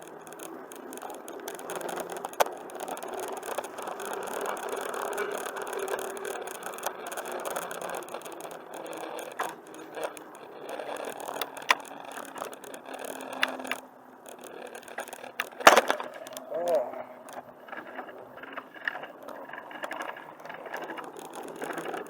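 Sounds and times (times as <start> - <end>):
bicycle tyres rolling on pavement: 0.0 - 22.0
bike rattling: 0.0 - 22.0
sharp clicks: 0.0 - 22.0.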